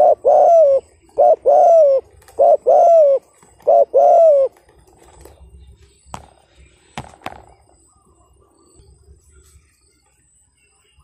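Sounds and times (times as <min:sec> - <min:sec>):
dove cooing: 0:00.0 - 0:05.3.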